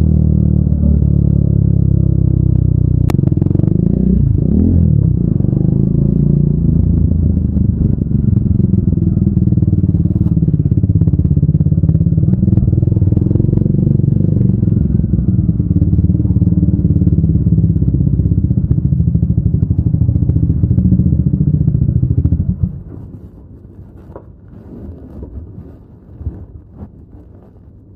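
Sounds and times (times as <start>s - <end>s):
motorcycle engine idling: 5.4s - 23.0s.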